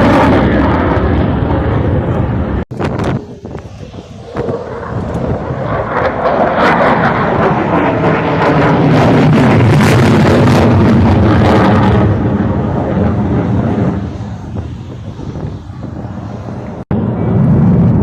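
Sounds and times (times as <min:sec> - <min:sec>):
jet aircraft flying by: 0:00.0 - 0:18.0.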